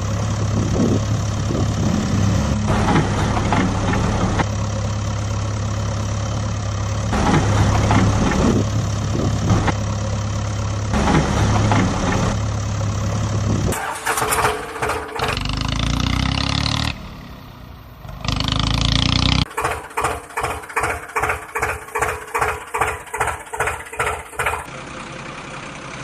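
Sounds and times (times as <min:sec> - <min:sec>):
rattling or scraping noises: 0:00.0 - 0:04.5, 0:06.9 - 0:10.0, 0:10.9 - 0:16.2, 0:19.4 - 0:24.7
vehicle engine idling: 0:00.0 - 0:16.2, 0:19.4 - 0:26.0.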